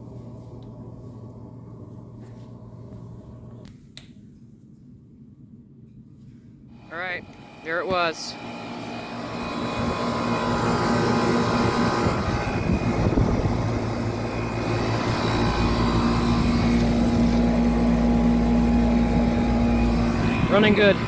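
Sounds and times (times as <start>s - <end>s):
air conditioner compressor hum: 0.0s - 21.0s.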